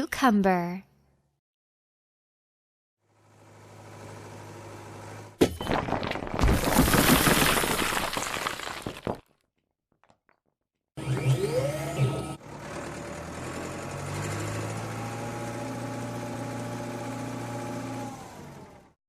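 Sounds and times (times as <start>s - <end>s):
crunching and shattering: 5.4s - 10.5s
cartoon engine hum: 11.0s - 15.0s
sliding engine whine: 11.0s - 18.9s.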